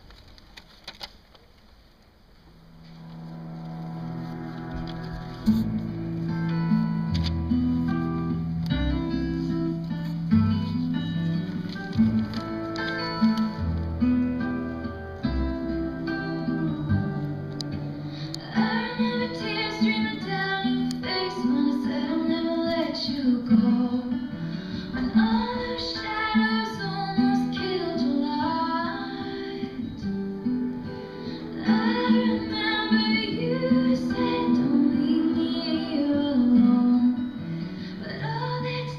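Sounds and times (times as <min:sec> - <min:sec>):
acoustic guitar picking: 0:02.6 - 0:38.9
woman singing: 0:18.3 - 0:30.2, 0:31.5 - 0:38.9.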